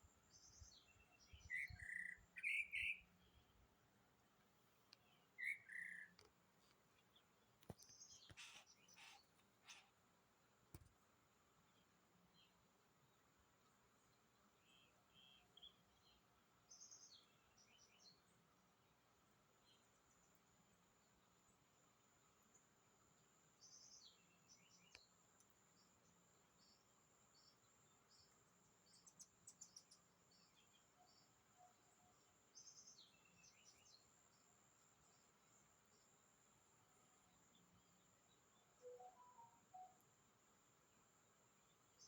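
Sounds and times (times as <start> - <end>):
small birds chirping: 0.2 - 3.6, 4.9 - 10.0, 14.0 - 36.2.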